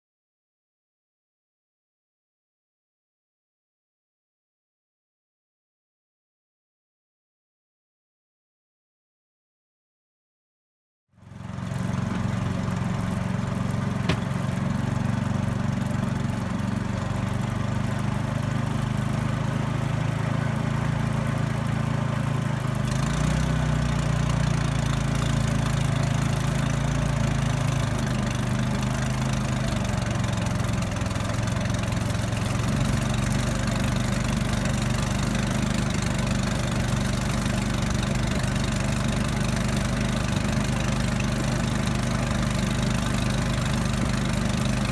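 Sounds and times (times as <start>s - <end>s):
small engine droning: 11.2s - 44.9s.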